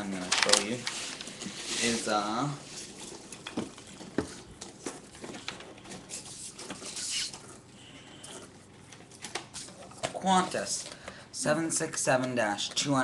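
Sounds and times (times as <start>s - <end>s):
packaging rustling: 0.0s - 7.7s.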